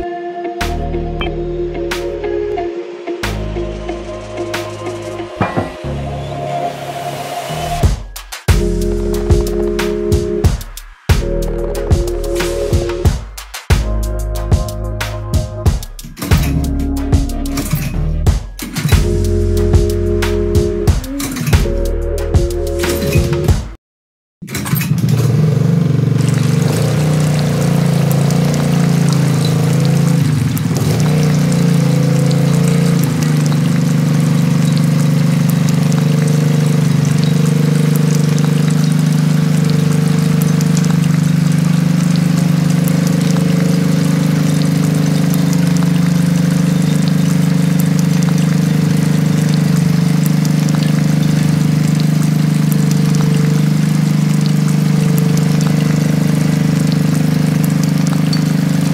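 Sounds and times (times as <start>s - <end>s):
electric water pump humming: 1.3s - 7.9s, 8.5s - 13.2s, 18.9s - 23.5s, 25.2s - 58.9s
water pouring and trickling: 3.6s - 7.9s, 25.8s - 58.9s.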